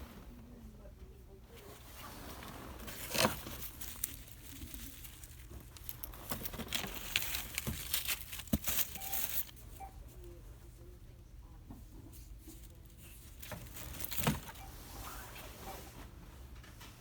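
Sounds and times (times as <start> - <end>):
plastic bag crinkling: 2.3 - 9.9, 12.5 - 14.7
small items clicking and knocking: 3.1 - 9.6.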